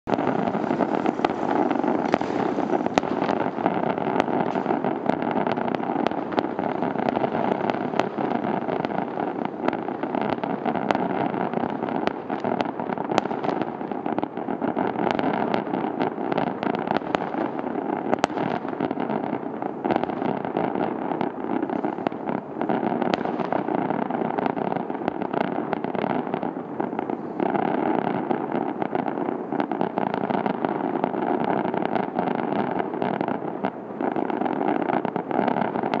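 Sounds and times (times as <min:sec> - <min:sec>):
fireworks bangs and crackling: 0:00.0 - 0:36.0
sharp firework reports: 0:00.1 - 0:11.1.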